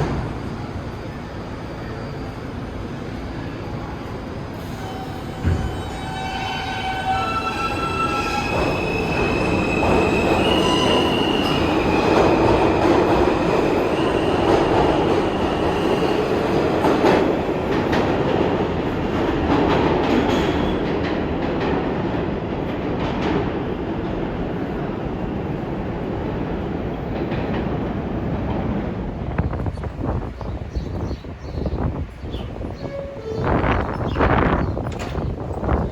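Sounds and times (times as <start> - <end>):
subway train rumbling: 0.0 - 35.9
high wheel squeal: 4.6 - 12.2.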